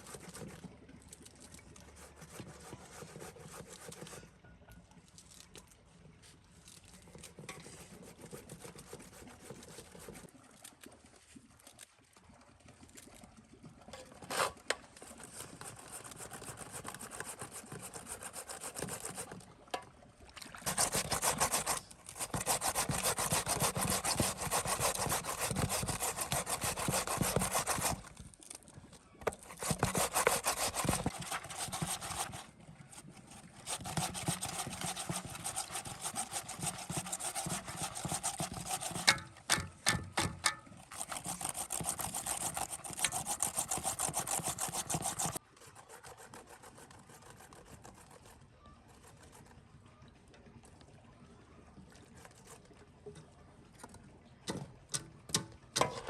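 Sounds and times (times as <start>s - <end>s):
saw rasping on wood: 2.0s - 4.3s, 14.2s - 19.4s, 20.6s - 28.2s, 29.2s - 48.3s.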